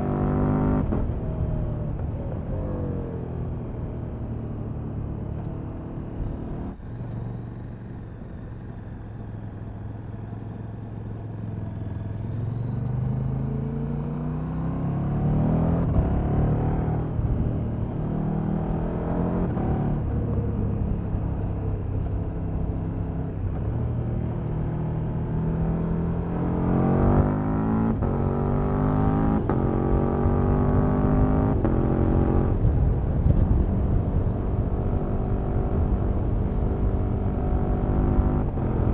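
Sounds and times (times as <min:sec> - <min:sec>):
motorcycle engine accelerating: 0:00.0 - 0:38.9
wind rush: 0:32.0 - 0:37.7.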